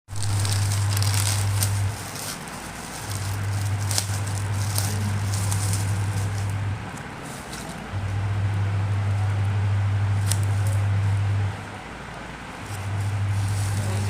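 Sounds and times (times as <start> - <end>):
plastic packaging crackling: 0.1 - 8.2, 10.1 - 11.4, 12.6 - 14.0
steady low hum: 0.1 - 14.0.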